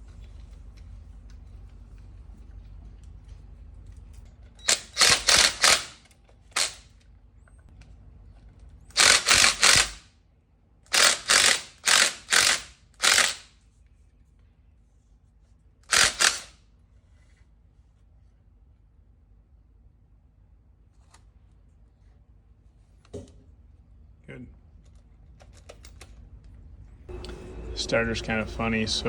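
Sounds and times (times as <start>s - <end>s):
power tool driving bolts: 4.6s - 6.9s, 8.9s - 10.0s, 10.9s - 13.5s, 15.9s - 16.5s.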